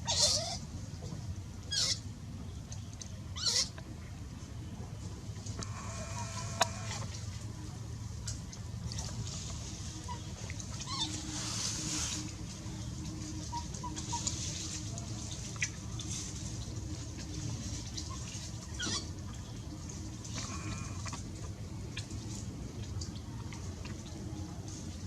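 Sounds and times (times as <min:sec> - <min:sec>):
animal calls: 0:00.0 - 0:00.6, 0:01.7 - 0:02.0, 0:03.4 - 0:03.8, 0:05.6 - 0:07.1, 0:18.0 - 0:19.1
low background noise: 0:00.0 - 0:25.0.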